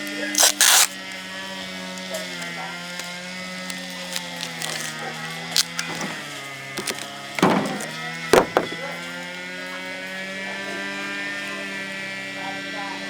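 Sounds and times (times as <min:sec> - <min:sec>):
sharp knocks and clacks: 0:06.8 - 0:09.0.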